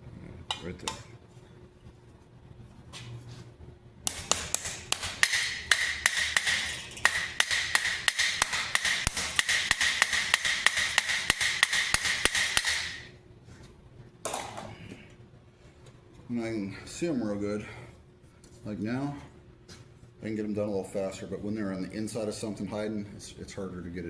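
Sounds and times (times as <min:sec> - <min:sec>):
hammer peening rivets on steel: 0:04.1 - 0:13.1.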